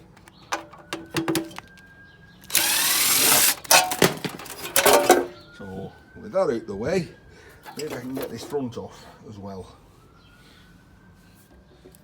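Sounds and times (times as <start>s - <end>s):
metal parts clattering: 0.0s - 1.8s, 2.5s - 5.4s, 7.7s - 8.6s
power tool whirring: 2.5s - 5.0s.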